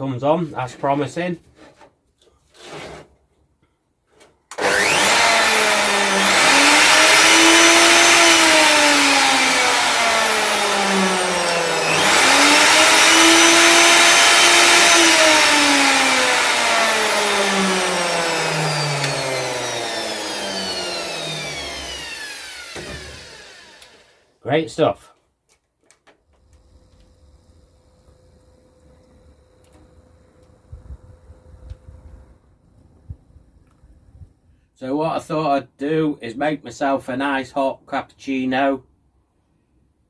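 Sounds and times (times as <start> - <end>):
router motor whining: 4.5 - 24.3.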